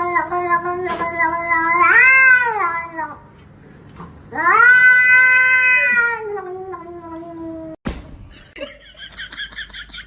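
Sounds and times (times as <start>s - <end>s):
cat yowling: 0.0s - 3.2s, 4.3s - 7.8s.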